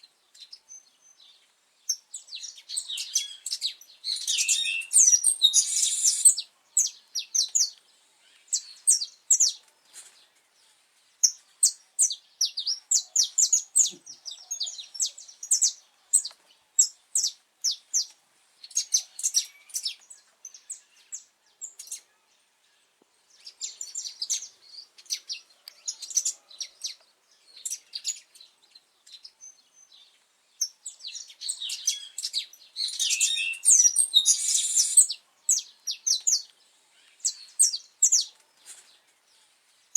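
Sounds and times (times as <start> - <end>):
finch singing high chirps: 1.9 - 7.8, 30.6 - 38.3.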